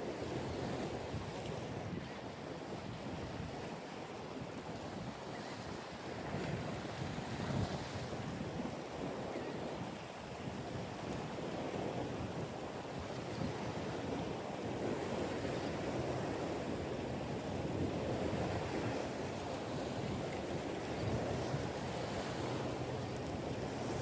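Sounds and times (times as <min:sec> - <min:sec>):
wind buffeting microphone: 0:00.2 - 0:24.0
ocean surf washing: 0:13.3 - 0:24.0.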